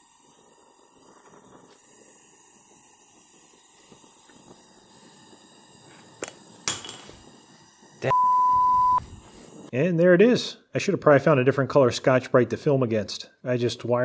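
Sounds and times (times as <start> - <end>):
gas torch flame hissing: 0.0 - 9.8.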